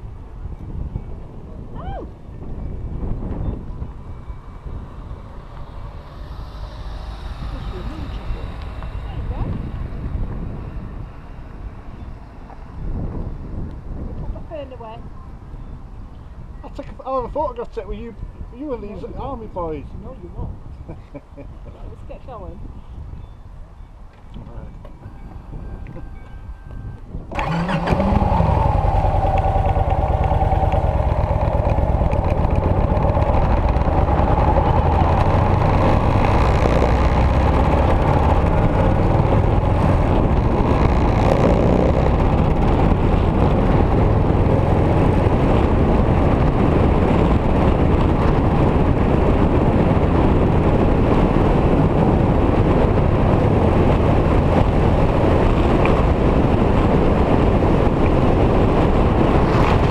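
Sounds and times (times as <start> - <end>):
wind rumble on microphone: 0.0 - 59.9
motorcycle engine running: 3.0 - 14.4, 27.3 - 59.9.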